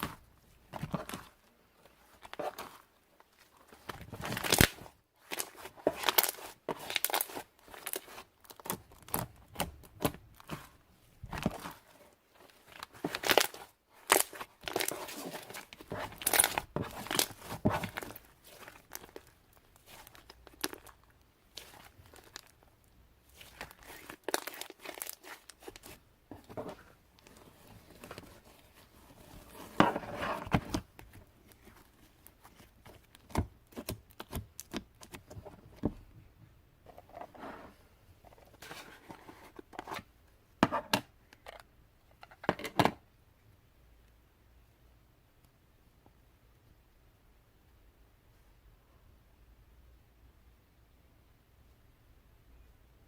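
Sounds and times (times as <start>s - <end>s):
slime crackling and popping: 23.3s - 26.0s.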